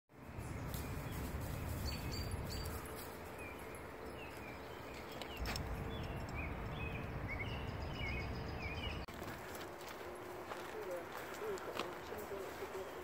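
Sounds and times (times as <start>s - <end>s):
bird chirping: 0.2s - 9.1s
low outdoor rumble: 0.5s - 13.0s.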